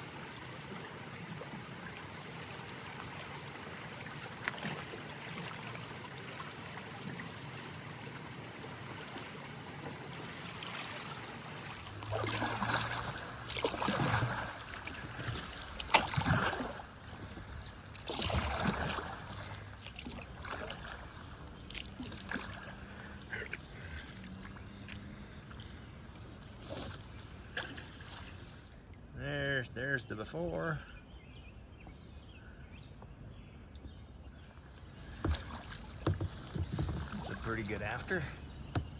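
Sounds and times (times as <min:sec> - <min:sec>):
water running over rocks: 0:00.0 - 0:26.1, 0:35.2 - 0:38.9
water splashing and sloshing: 0:00.0 - 0:29.1, 0:33.7 - 0:38.9.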